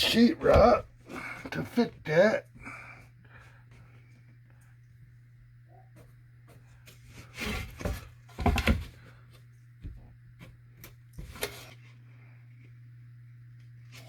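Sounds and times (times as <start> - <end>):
sheetrock scraping rustles: 6.7 - 9.2.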